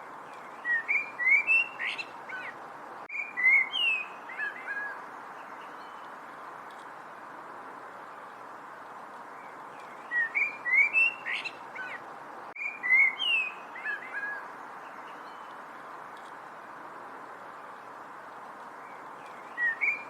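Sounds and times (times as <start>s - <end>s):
steady background hiss: 0.0s - 20.0s
bird singing whistled notes: 0.5s - 2.5s, 3.1s - 6.0s, 9.4s - 12.0s, 12.6s - 15.5s, 18.8s - 20.0s.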